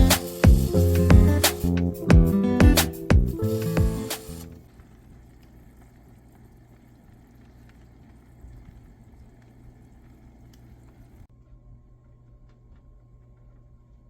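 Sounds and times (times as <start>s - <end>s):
light hiss: 0.0s - 1.8s.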